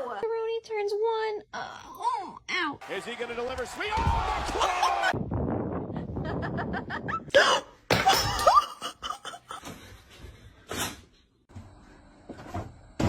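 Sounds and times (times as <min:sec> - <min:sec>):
person laughing in bursts: 0:06.0 - 0:09.6.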